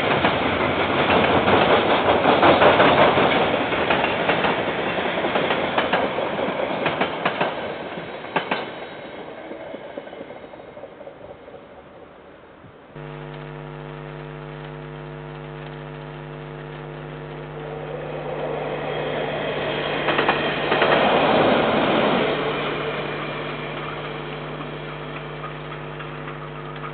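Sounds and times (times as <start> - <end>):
train wheels rumbling on rail: 0.0 - 12.1, 17.9 - 26.8
steady pitched hum: 13.0 - 18.3.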